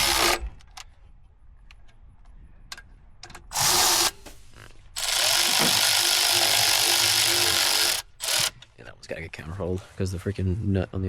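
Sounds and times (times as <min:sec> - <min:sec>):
handheld power tool running: 0:00.0 - 0:00.4, 0:03.5 - 0:04.3, 0:05.0 - 0:08.6.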